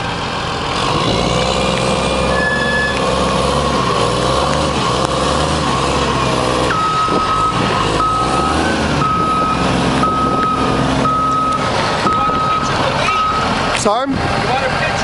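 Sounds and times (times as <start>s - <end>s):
forklift engine running: 0.0s - 15.0s
reversing alarm beeping: 2.3s - 3.0s, 5.4s - 13.6s.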